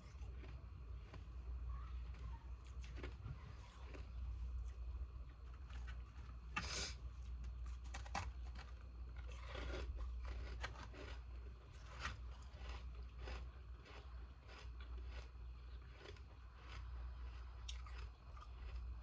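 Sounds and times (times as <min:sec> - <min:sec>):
ice crunched between teeth: 0:07.7 - 0:18.9.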